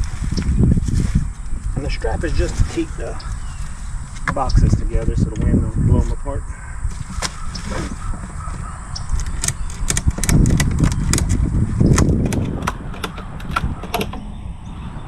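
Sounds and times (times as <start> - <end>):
strap buckle clicking and rattling: 9.1 - 14.2.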